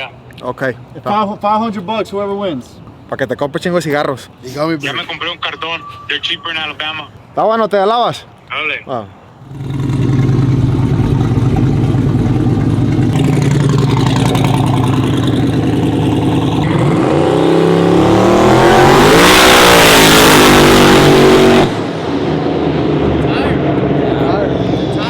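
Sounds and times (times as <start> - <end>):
truck engine accelerating: 9.4 - 25.0.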